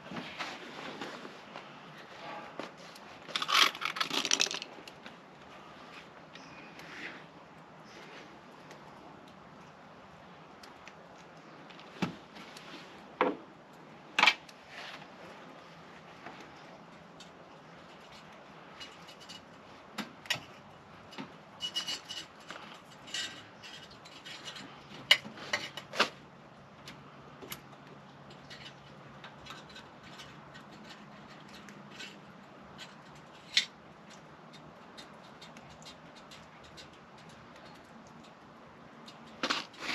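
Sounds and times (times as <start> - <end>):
tools and metal hardware clinking: 17.8 - 19.6, 20.3 - 26.0.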